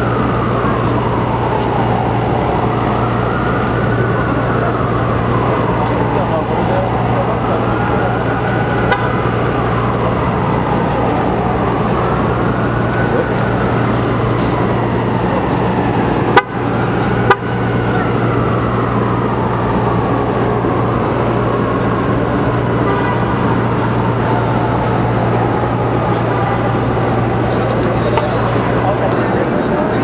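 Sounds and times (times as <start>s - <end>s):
city traffic: 0.0s - 30.0s.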